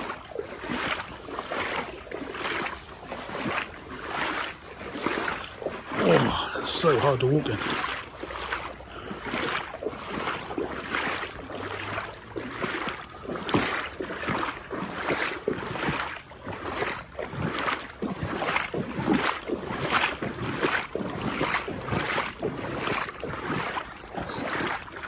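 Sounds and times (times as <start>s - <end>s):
wading through water: 0.0s - 25.0s.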